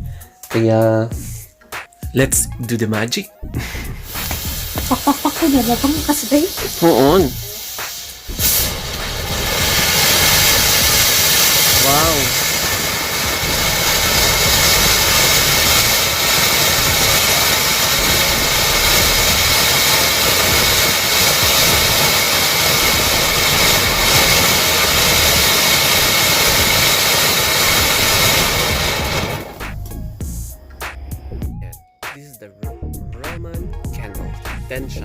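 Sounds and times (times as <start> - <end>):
firework fountain hissing: 3.6 - 30.1.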